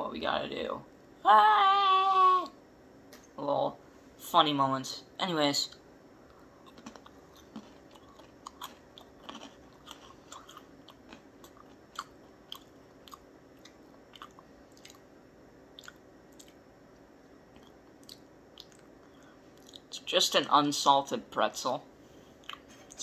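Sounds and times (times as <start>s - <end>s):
crisp pretzel crunches: 6.6s - 15.0s.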